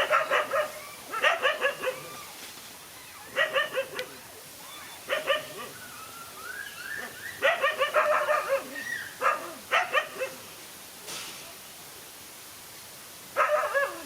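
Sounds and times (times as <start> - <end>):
dogs barking: 0.0 - 2.3, 3.2 - 4.2, 5.0 - 5.8, 7.0 - 10.4, 13.4 - 14.0.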